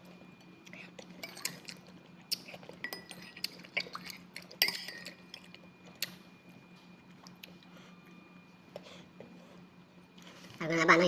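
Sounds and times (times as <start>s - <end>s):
cutlery clinking against a dish: 2.8s - 5.5s.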